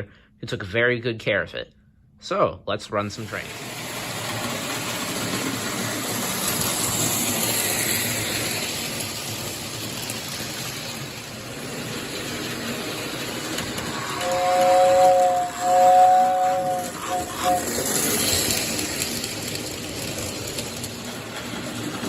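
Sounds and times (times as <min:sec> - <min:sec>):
toy train rattling on track: 0:03.2 - 0:22.0
toy train whistle chord: 0:14.2 - 0:18.2.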